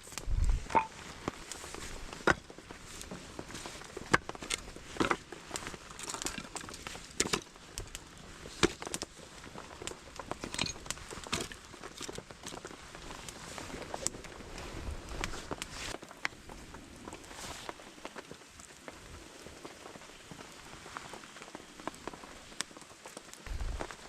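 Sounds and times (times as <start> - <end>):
campfire crackling: 0.0 - 24.0
firewood knocking: 0.6 - 0.9.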